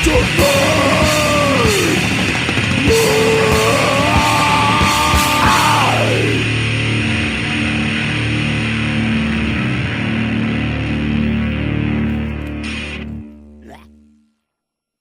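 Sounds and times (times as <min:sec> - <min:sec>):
drums with cymbal hits: 0:00.0 - 0:09.2
distorted guitar: 0:00.0 - 0:13.9.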